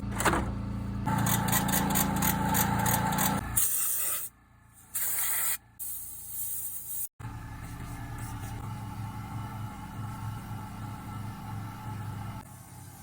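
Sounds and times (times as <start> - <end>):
machine hum: 0.0 - 3.6, 7.2 - 12.5.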